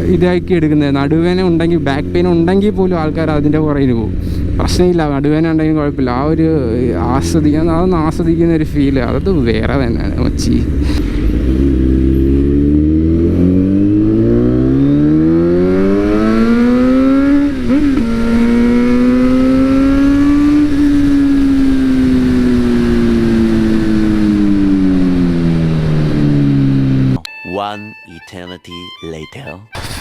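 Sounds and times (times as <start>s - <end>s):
motorcycle engine revving: 0.0s - 27.2s, 29.8s - 30.0s.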